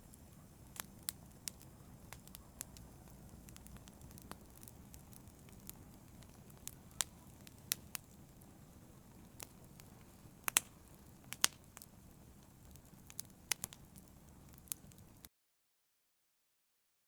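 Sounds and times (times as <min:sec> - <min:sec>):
fire popping: 0:00.0 - 0:15.3
fire rumbling: 0:00.0 - 0:15.3.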